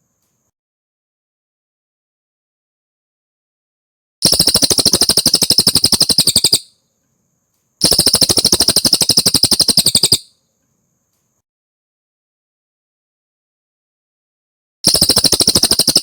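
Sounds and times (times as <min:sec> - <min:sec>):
bird shrill pulsed trills: 0:04.2 - 0:06.8, 0:07.8 - 0:10.4, 0:14.9 - 0:16.0.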